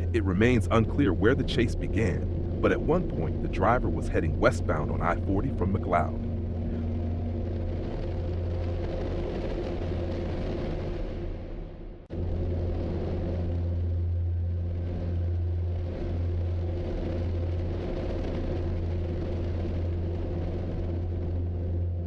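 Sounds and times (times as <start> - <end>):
vehicle engine drone: 0.0 - 22.0.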